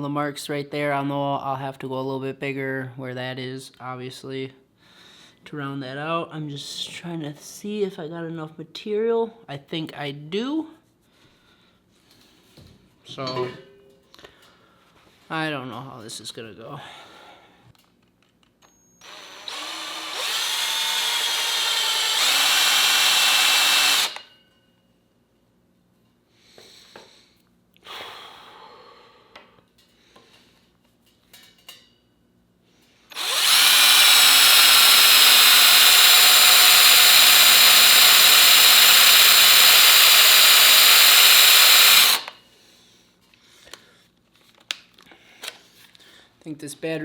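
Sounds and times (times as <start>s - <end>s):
cordless drill drilling metal: 19.0s - 24.3s, 33.1s - 42.4s.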